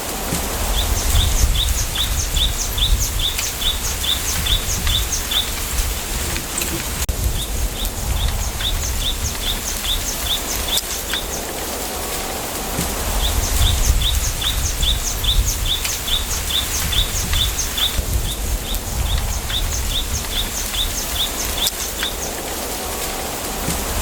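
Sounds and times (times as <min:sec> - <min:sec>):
low wind rumble: 0:00.0 - 0:24.0
wind hissing through bamboo: 0:00.0 - 0:24.0
small bird chirping: 0:00.6 - 0:06.0, 0:07.3 - 0:11.5, 0:13.1 - 0:22.4.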